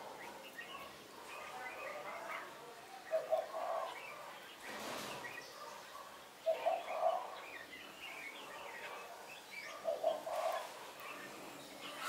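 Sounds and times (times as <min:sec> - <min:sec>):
bird cooing call: 0:03.1 - 0:04.0, 0:06.4 - 0:07.4, 0:09.7 - 0:12.0.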